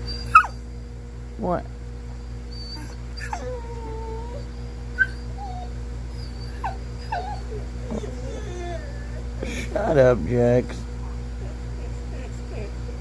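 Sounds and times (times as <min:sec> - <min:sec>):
dog whining and whimpering: 0:00.0 - 0:00.7, 0:02.4 - 0:09.6, 0:11.4 - 0:13.0.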